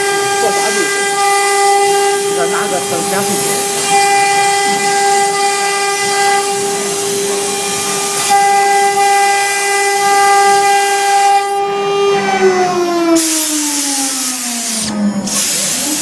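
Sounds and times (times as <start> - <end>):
loud hiss: 0.0 - 11.5
router spindle high whine: 0.0 - 16.0.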